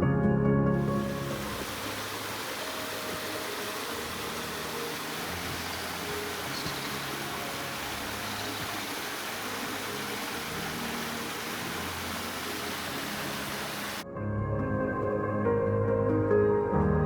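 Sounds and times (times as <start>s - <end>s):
soft ambient music: 0.0s - 17.0s
rushing outdoor noise: 0.8s - 14.0s.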